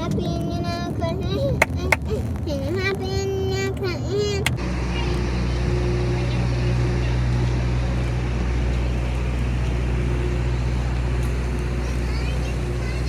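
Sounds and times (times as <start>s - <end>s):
vehicle interior rumble: 0.0s - 13.0s.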